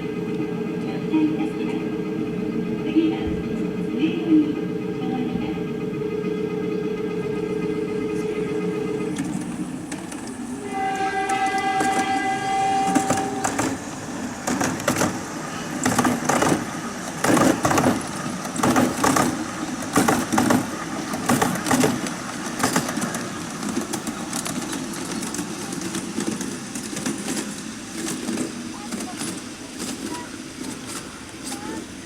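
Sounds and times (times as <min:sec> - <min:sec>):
train horn tone: 0:00.0 - 0:09.4, 0:10.6 - 0:14.5
model train wheels clicking: 0:09.0 - 0:32.0.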